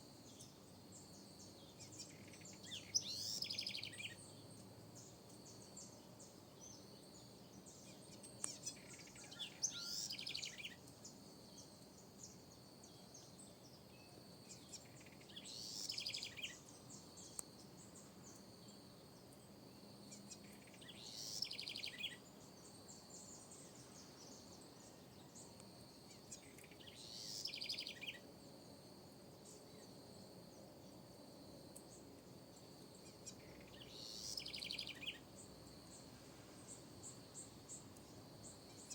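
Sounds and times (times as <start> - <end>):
wren singing: 0.3 - 13.6, 14.5 - 18.4, 20.1 - 28.2, 33.0 - 35.2
high insect trill: 14.0 - 38.9.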